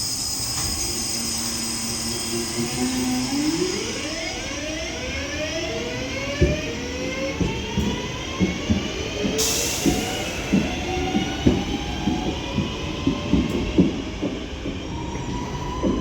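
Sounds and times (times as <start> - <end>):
electric train motors whining: 0.0 - 9.2.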